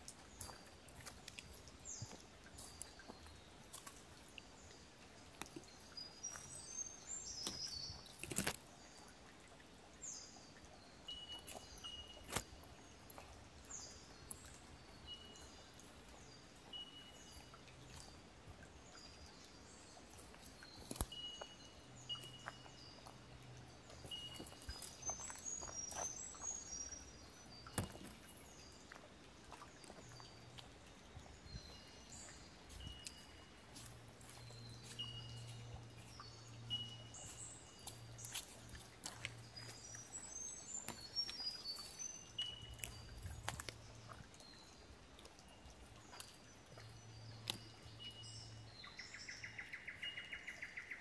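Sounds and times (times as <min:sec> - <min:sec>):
birds calling and singing: 0:18.9 - 0:29.0, 0:29.6 - 0:51.0.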